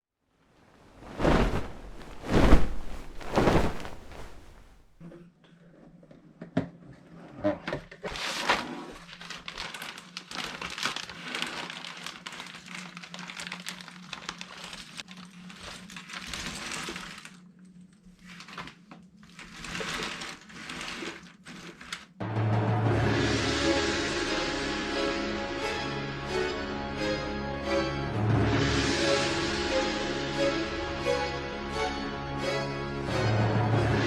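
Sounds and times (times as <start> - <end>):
plastic wrapping crinkling: 0.9 - 4.9.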